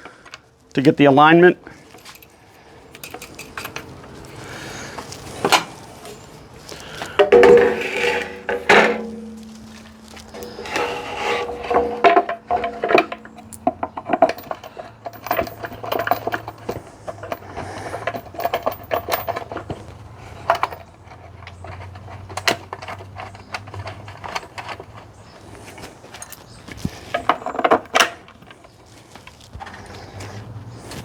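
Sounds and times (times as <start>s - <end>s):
metal parts clinking and knocking: 2.9s - 4.2s, 6.9s - 25.2s, 26.1s - 28.7s.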